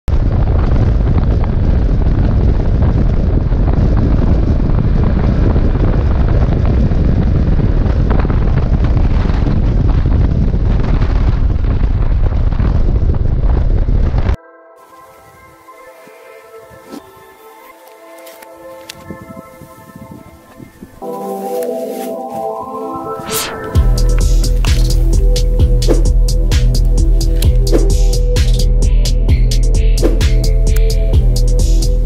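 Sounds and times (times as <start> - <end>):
wind buffeting microphone: 0.1 - 14.4, 18.5 - 21.5, 23.2 - 32.0.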